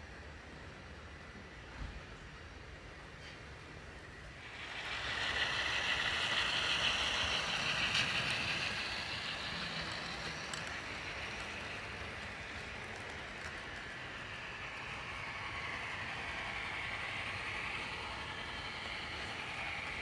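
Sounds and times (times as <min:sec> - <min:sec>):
model train running on track: 0:00.0 - 0:20.0
faint clicks: 0:04.7 - 0:20.0.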